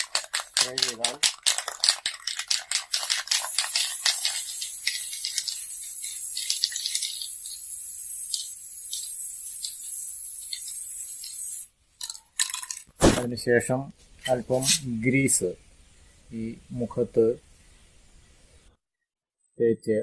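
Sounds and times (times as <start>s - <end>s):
spray can ball rattling: 0.0s - 13.0s
spray can hissing: 0.1s - 11.7s.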